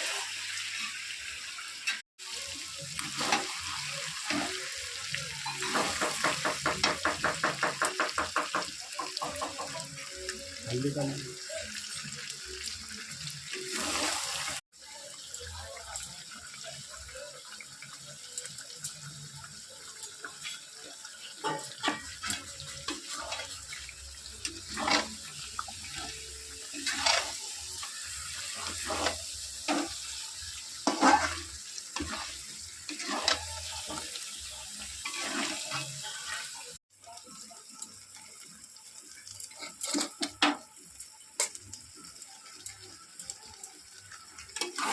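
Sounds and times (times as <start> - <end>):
curry sizzling in a pan: 0.0 - 44.9
metal spoon scraping a pan: 20.2 - 36.6, 39.4 - 40.6, 44.4 - 44.9.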